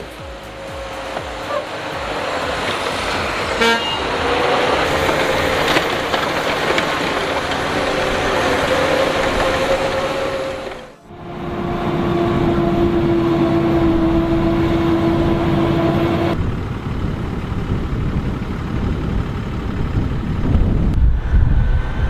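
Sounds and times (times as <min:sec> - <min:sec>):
short horn toot: 0:00.0 - 0:05.2
heavy machinery engines running: 0:00.0 - 0:22.0
steady machine whine: 0:00.0 - 0:22.0.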